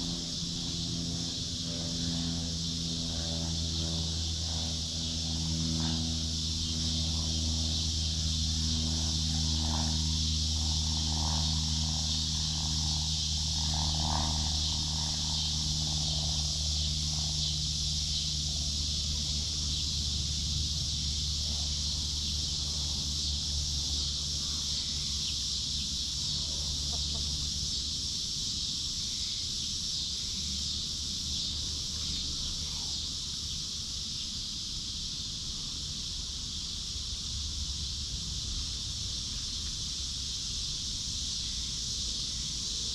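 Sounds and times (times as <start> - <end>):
low motor hum: 0.0 - 28.2
high insect drone: 0.0 - 42.9
hens clucking: 26.8 - 27.4.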